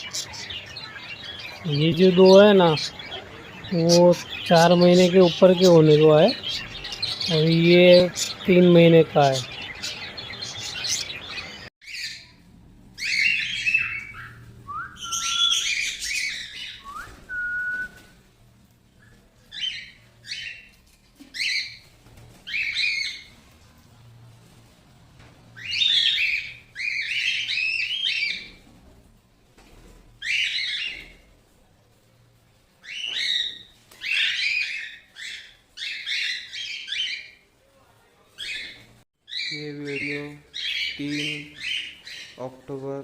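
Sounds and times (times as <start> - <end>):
parrots chirping and squawking: 0.0 - 12.4, 13.0 - 16.8, 25.6 - 28.6, 30.2 - 31.2, 32.8 - 37.4, 38.4 - 42.6.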